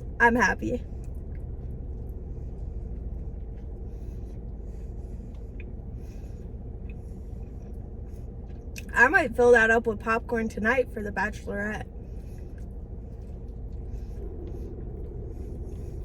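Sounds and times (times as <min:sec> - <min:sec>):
car cabin rumble: 0:00.0 - 0:16.0
faint steady hum: 0:00.0 - 0:16.0
faint soft sounds: 0:11.8 - 0:16.0.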